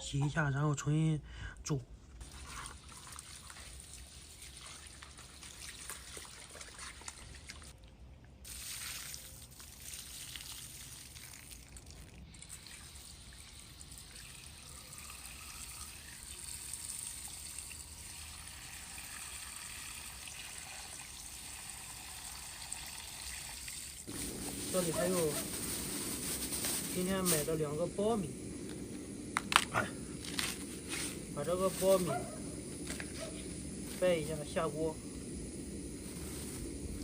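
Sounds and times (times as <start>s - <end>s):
tap water running into a pot: 2.2s - 7.8s, 8.5s - 25.3s.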